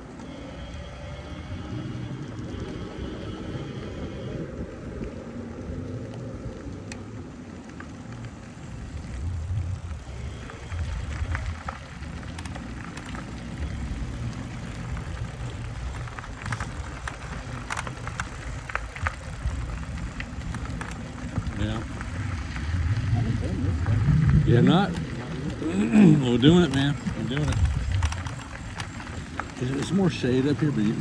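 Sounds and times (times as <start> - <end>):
tyre rumble: 1.2 - 31.0
light clicks and rattles: 6.0 - 31.0
wind on microphone: 13.6 - 29.6.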